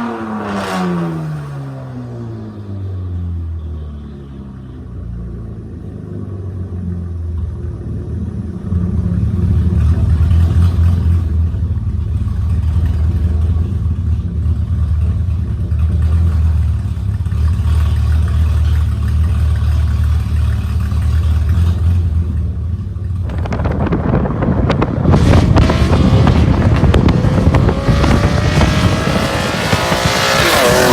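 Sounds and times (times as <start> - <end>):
car engine exhaust drone: 0.0 - 30.9
rush of noise: 23.2 - 30.9.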